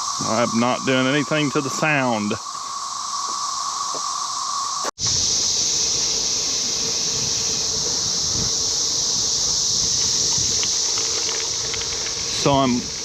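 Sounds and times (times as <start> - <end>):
cicadas chorus: 0.0 - 13.0
wind rumble on microphone: 5.0 - 13.0.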